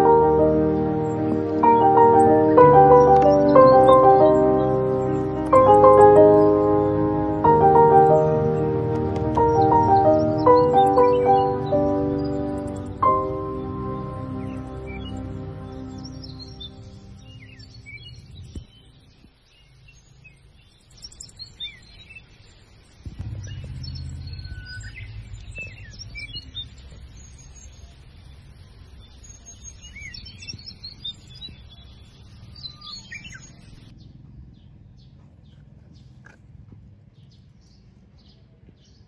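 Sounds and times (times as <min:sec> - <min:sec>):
small birds chirping: 0:00.0 - 0:39.0
low rumble: 0:23.1 - 0:27.6.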